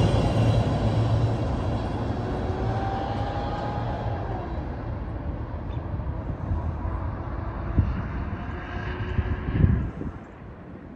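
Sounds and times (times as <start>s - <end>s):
train wheels rumbling on rail: 0.0s - 5.7s.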